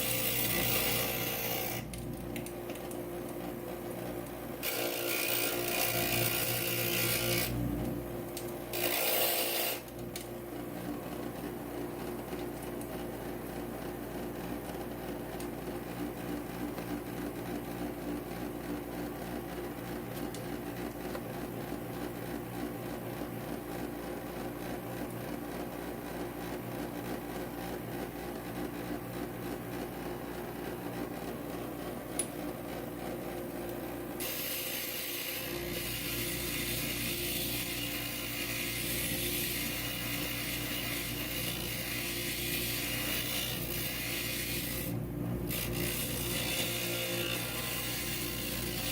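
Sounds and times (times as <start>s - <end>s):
glass grinder motor hum: 4.6s - 7.6s, 8.7s - 9.9s, 34.2s - 48.9s.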